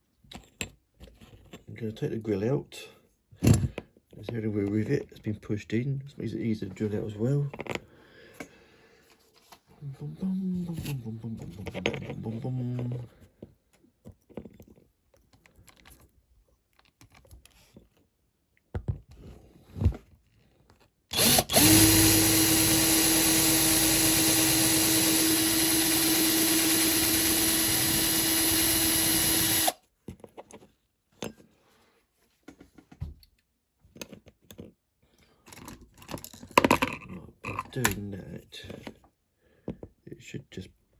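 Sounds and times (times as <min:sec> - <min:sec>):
small electric drill running: 0:21.1 - 0:29.8.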